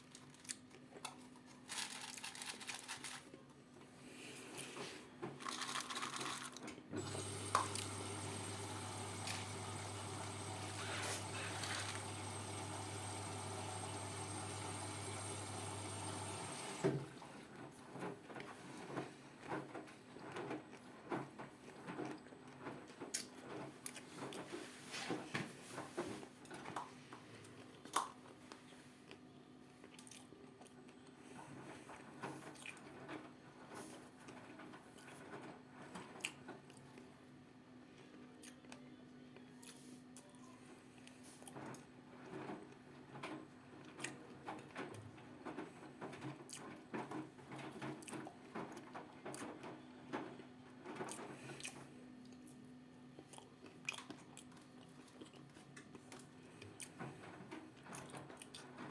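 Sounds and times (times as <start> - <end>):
washing machine filling with water: 6.9 - 17.6.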